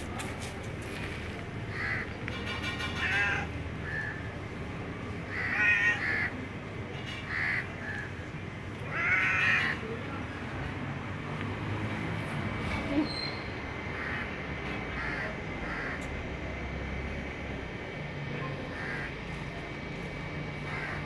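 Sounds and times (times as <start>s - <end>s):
crow cawing: 1.7s - 2.1s, 3.0s - 4.2s, 5.3s - 6.3s, 7.3s - 8.1s, 8.9s - 9.8s, 14.0s - 14.3s, 15.0s - 16.0s, 18.7s - 19.1s, 20.6s - 21.0s.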